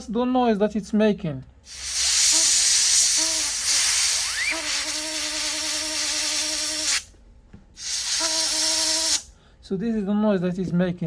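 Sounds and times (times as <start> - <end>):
compressed air hissing: 1.6 - 7.1, 7.8 - 9.4.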